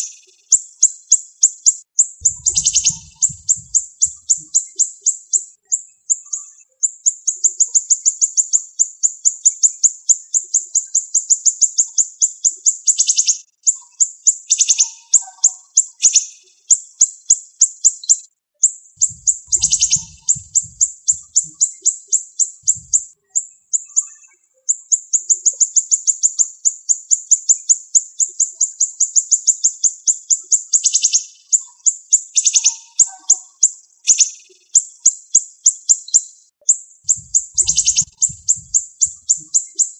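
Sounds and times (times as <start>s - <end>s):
songbird singing rapid high notes: 2.2s - 4.8s, 19.0s - 23.1s, 37.1s - 39.9s.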